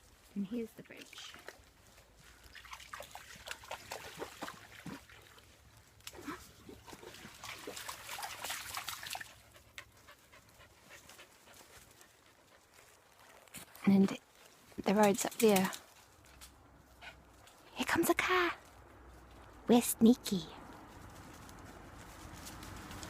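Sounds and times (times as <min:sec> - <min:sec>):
stream trickling: 0:00.2 - 0:16.2
dogs panting: 0:09.2 - 0:13.4.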